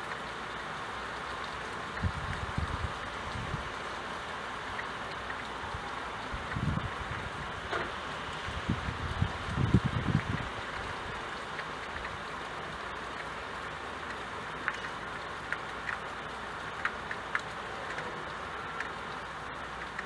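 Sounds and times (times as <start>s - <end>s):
drips ticking: 0.0s - 20.0s
steady rain: 0.0s - 20.0s.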